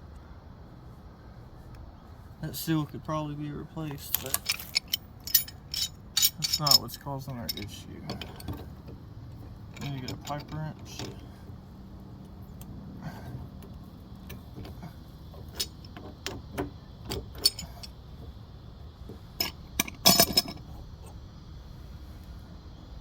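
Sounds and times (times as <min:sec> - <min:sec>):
rattling metal clanks: 0:03.8 - 0:11.5, 0:13.0 - 0:18.4, 0:19.0 - 0:21.2
metal wrench clinking and tapping: 0:03.9 - 0:11.3, 0:13.2 - 0:18.0, 0:19.1 - 0:21.2.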